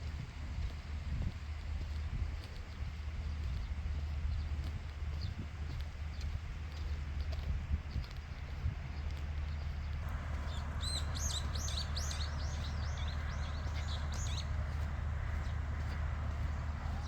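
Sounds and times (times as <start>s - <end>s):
steady low hum: 0.0s - 17.0s
small bird singing: 9.5s - 16.0s.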